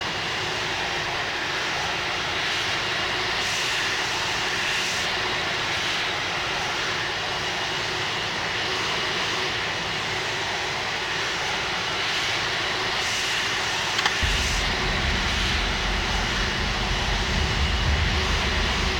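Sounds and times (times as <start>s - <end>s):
jet engines running: 13.8s - 18.9s.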